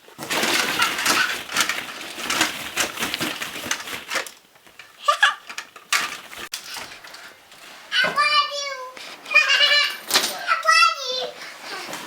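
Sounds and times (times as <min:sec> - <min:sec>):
plastic balls rattling together: 0:00.1 - 0:07.3.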